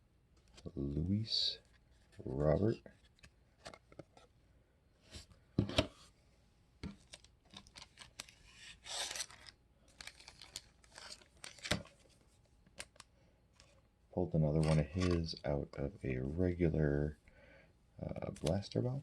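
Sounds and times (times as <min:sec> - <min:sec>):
cards clicking and wrappers crinkling: 0:06.8 - 0:13.8, 0:14.5 - 0:15.6, 0:18.2 - 0:18.9
wrapper tearing rustle: 0:07.0 - 0:12.0.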